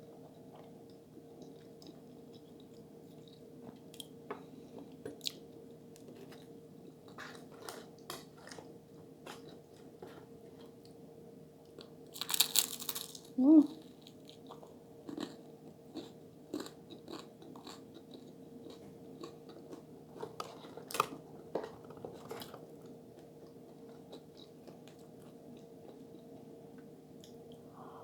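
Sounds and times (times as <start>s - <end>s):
person chewing food: 0.1s - 10.8s, 11.8s - 13.2s, 13.8s - 22.6s.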